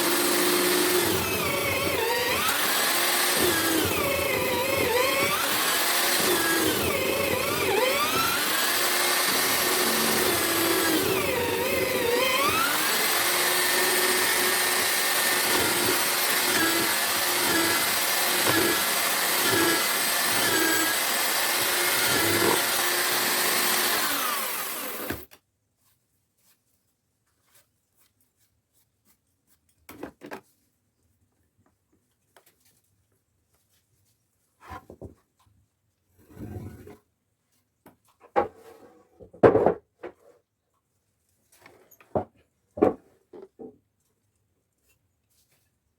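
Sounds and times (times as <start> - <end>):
drill-powered mortiser cutting wood: 0.0 - 25.3.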